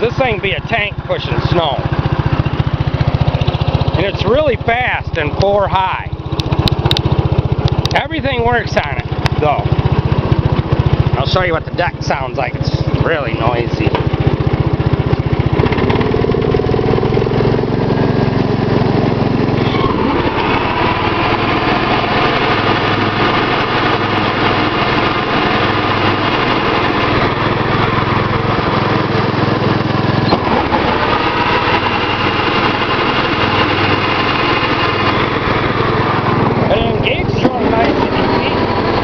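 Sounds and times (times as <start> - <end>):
walk-behind tractor engine: 0.0 - 39.0
whine rising in pitch: 29.8 - 39.0.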